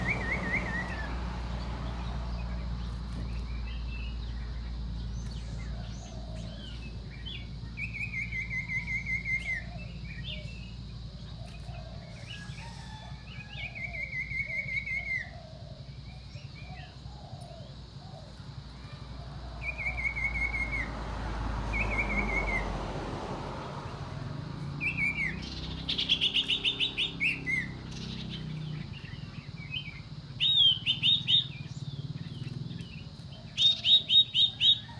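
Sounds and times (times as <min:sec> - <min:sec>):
bird trilled whistles: 0:00.0 - 0:01.1, 0:07.4 - 0:10.6, 0:12.1 - 0:15.4, 0:24.8 - 0:28.6, 0:29.6 - 0:31.8.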